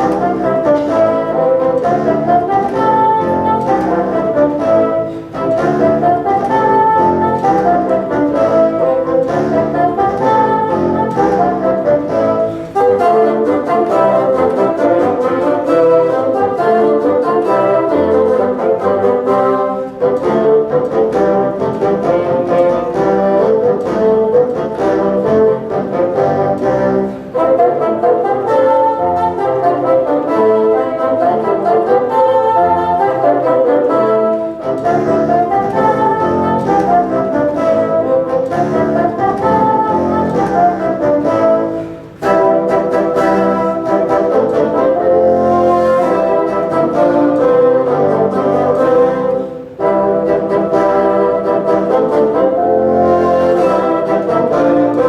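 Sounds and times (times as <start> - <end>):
bassoon ensemble playing: 0.0 - 55.0.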